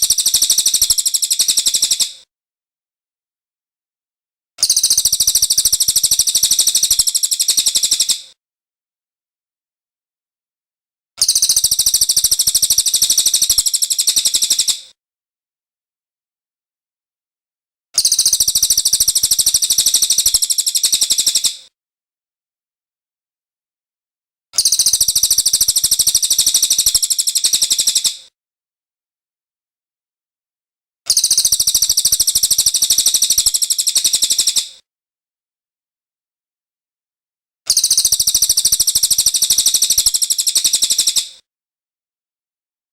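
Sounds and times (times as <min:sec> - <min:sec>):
songbird high-pitched trill: 0:11.2 - 0:14.7, 0:18.0 - 0:21.5, 0:24.6 - 0:28.1, 0:31.1 - 0:34.6, 0:37.7 - 0:41.2.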